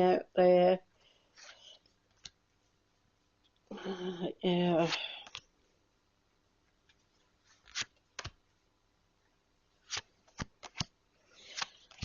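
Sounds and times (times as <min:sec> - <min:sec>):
cards snapping and slapping: 0:07.6 - 0:08.4, 0:09.8 - 0:12.0.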